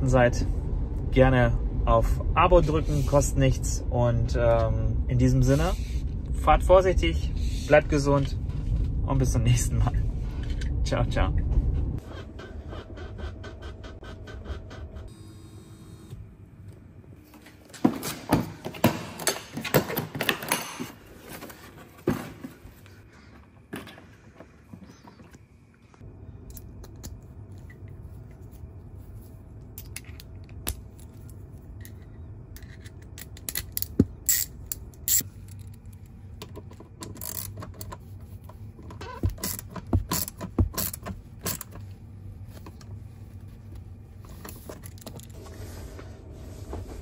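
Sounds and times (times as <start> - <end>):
road and tyre noise in car: 0.0 - 15.2, 26.8 - 47.0.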